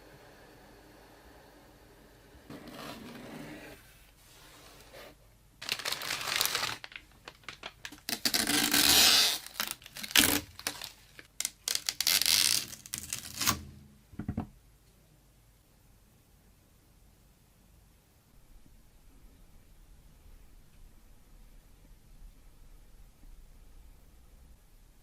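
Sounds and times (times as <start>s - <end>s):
packaging tearing and crinkling: 5.6s - 13.6s.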